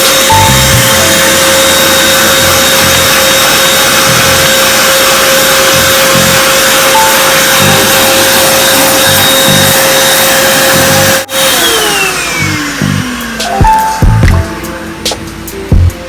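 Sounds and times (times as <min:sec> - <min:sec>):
vacuum cleaner motor whining: 0:00.0 - 0:16.0
background music with a beat: 0:12.8 - 0:16.0.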